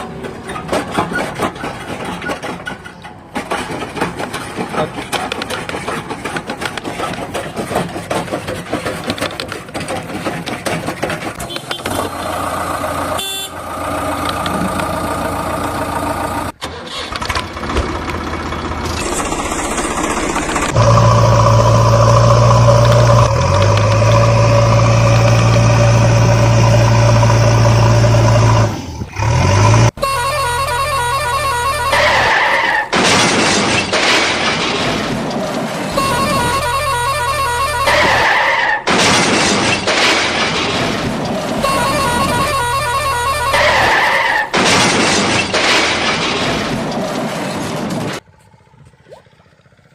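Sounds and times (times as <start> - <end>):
digging gear clanking: 0.0 - 12.4
backhoe diesel engine: 0.0 - 49.9.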